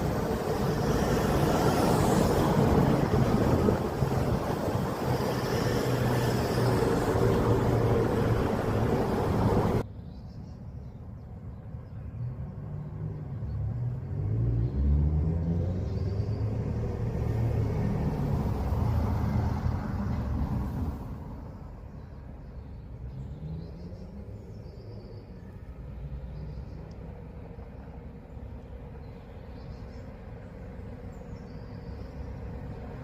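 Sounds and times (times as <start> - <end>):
train engine rising in pitch: 0.0 - 9.8
passing train rumbling: 0.0 - 9.9, 13.6 - 24.4, 25.2 - 33.0.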